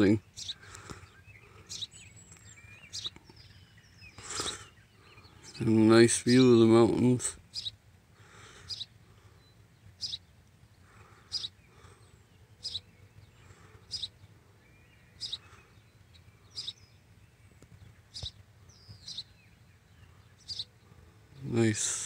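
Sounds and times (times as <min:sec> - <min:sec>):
bird chirping: 0:00.0 - 0:22.0.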